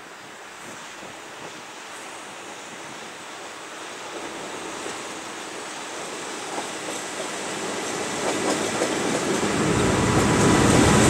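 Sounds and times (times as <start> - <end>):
freight train rushing rumble: 0.6 - 11.0.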